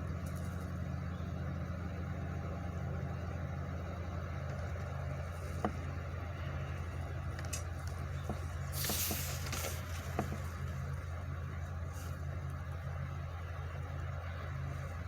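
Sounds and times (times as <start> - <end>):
truck engine idling: 0.0 - 15.0
brief hiss: 8.7 - 10.2.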